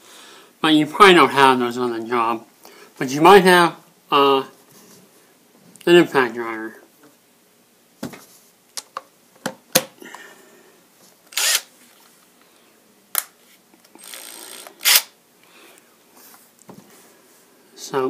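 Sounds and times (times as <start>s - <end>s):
impact driver whirring: 11.3s - 11.7s, 14.0s - 15.1s.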